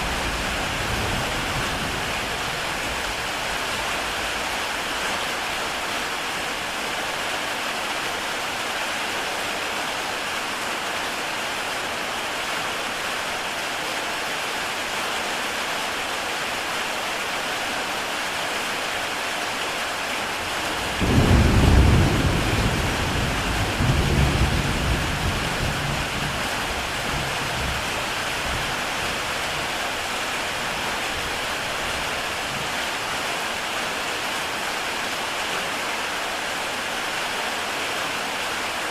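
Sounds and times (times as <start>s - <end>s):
deep roll of thunder: 0.0s - 3.2s, 20.7s - 26.4s
heavy rain on a tile roof: 0.0s - 38.9s.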